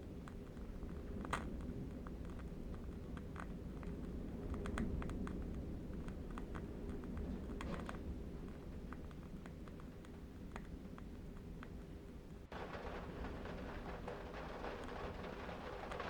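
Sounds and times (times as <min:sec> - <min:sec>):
low wind rumble: 0:00.0 - 0:16.0.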